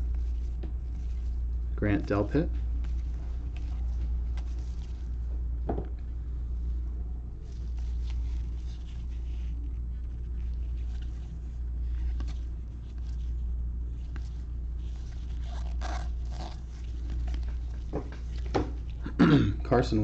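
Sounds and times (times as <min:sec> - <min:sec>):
low hum: 0:00.0 - 0:20.0
trading cards sliding and scraping: 0:02.8 - 0:05.2, 0:07.4 - 0:19.0.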